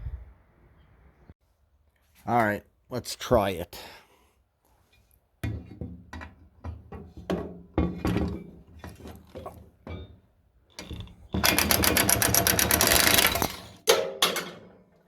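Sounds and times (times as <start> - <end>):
power tool fast rattle: 10.8 - 13.9.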